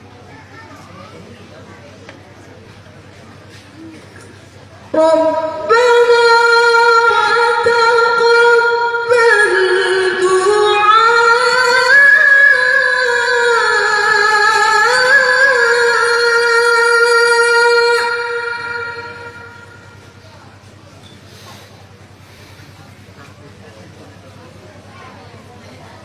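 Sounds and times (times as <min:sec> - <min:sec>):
woman chanting melodically: 0:04.8 - 0:20.2.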